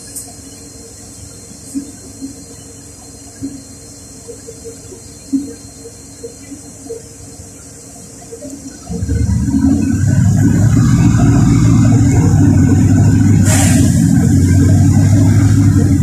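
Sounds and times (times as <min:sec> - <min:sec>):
bus engine hum: 0:00.0 - 0:02.6, 0:03.3 - 0:16.0
bus pulling away: 0:08.8 - 0:16.0.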